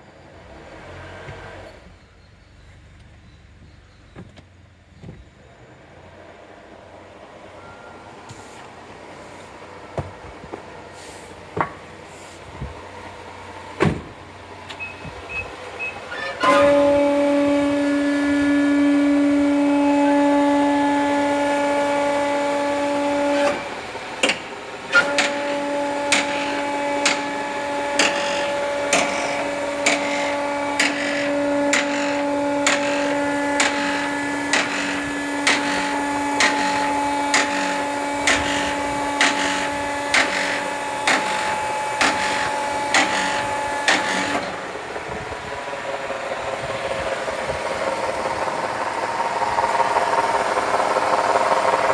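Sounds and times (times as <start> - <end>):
engine idling: 1.2 - 51.9
transmission whining: 12.6 - 51.9.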